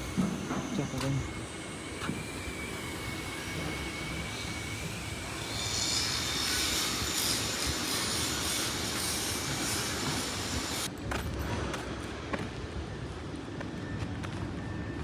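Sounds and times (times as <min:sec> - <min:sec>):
metalworking tool screeching on steel: 0:00.0 - 0:10.9.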